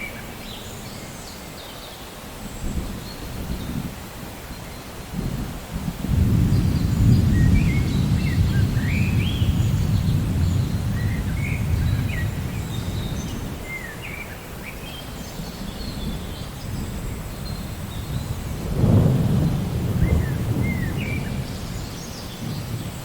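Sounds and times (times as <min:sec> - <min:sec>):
thunder rumble: 0:05.1 - 0:13.8, 0:15.2 - 0:23.0.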